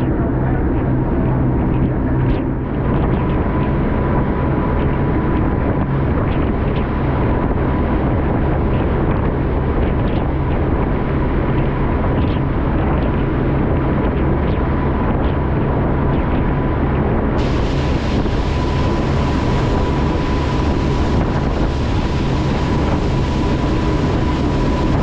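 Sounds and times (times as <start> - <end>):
boat motor running: 0.0 - 25.0
wind noise on microphone: 0.0 - 25.0.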